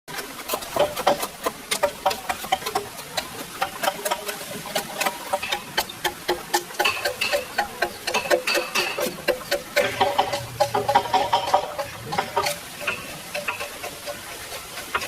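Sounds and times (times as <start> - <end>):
ringing knocks and clicks: 5.0 - 14.3.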